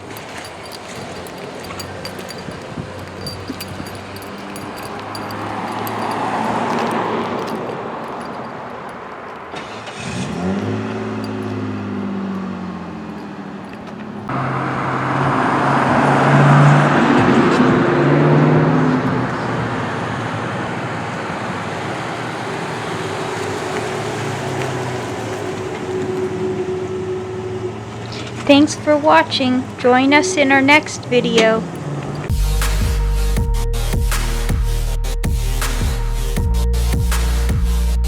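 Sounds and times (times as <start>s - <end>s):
road and tyre noise: 0.0s - 32.3s.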